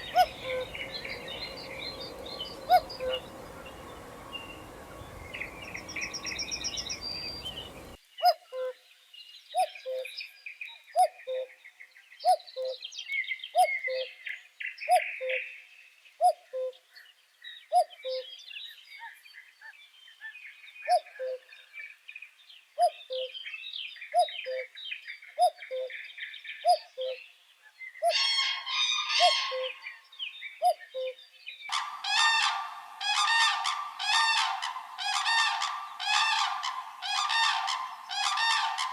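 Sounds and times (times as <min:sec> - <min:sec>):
bird two-note call: 0:00.0 - 0:08.0
loud honking calls: 0:00.0 - 0:08.0, 0:31.7 - 0:38.9
small birds chirping: 0:00.0 - 0:08.0.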